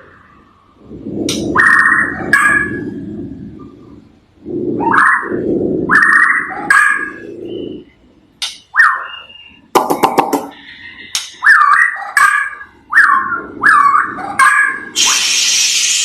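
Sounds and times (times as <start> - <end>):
bird whistling song: 4.8 - 8.0, 8.7 - 9.7
bird harsh hissing rasp: 15.0 - 16.0.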